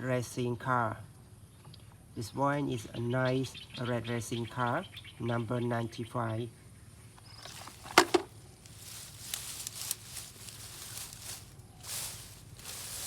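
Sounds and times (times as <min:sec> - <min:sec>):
rustling with light ticks: 0:07.1 - 0:13.0.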